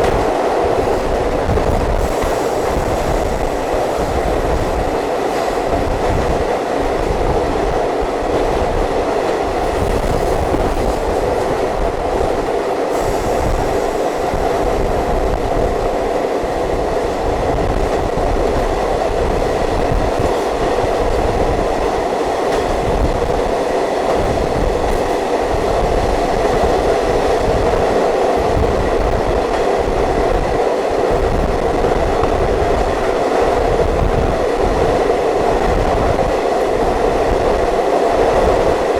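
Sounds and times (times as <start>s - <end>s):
train wheels rumbling on track: 0.0s - 38.9s.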